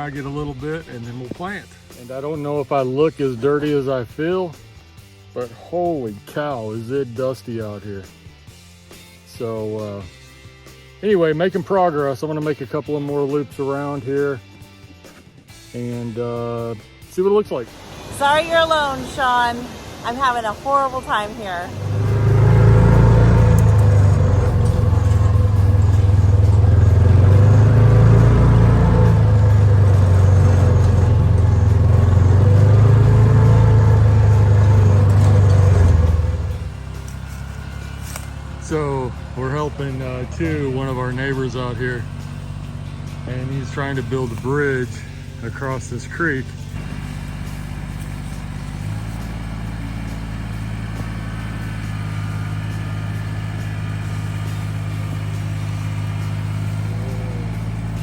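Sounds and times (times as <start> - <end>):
mower cutting through brush: 21.1 - 58.0
tractor engine running under load: 21.1 - 58.0.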